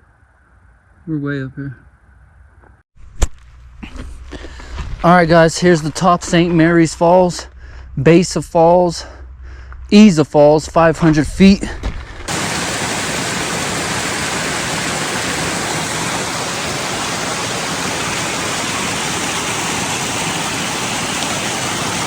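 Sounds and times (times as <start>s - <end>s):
waterfall pouring: 12.2s - 22.0s.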